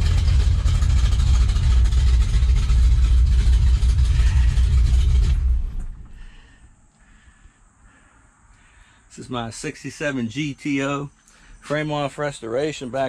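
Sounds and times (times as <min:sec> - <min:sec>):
car engine running loudly: 0:00.0 - 0:06.4.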